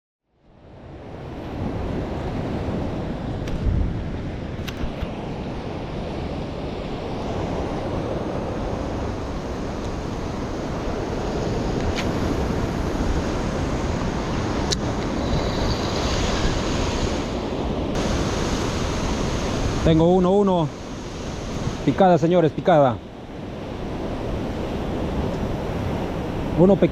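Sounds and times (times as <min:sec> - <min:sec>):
ocean surf washing: 0:00.5 - 0:26.9
wind buffeting microphone: 0:00.8 - 0:22.0.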